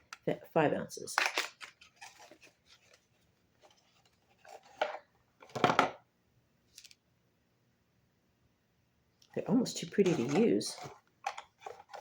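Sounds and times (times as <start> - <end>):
packaging rustling: 1.2 - 5.0.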